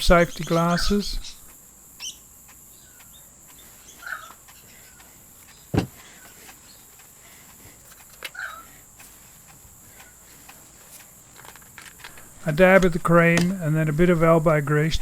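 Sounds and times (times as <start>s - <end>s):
sharp knock: 5.7s - 6.0s.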